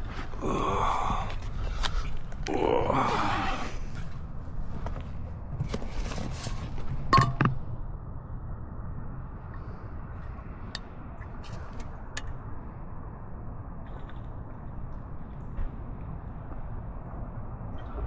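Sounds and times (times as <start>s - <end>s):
water bottle clicks and knocks: 7.1s - 7.6s.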